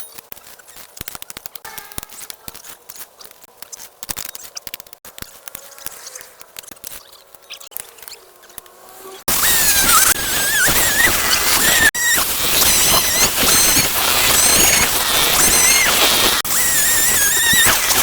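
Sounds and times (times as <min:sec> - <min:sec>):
faint thin squeaks: 0:00.0 - 0:18.0
clicking and tapping of objects: 0:00.1 - 0:08.8.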